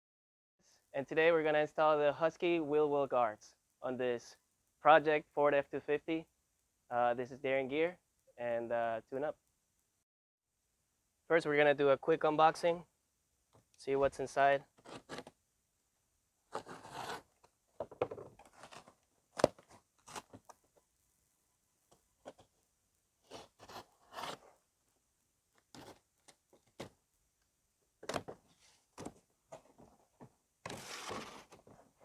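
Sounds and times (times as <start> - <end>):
cardboard tearing and crinkling: 18.4 - 20.4, 30.7 - 31.6.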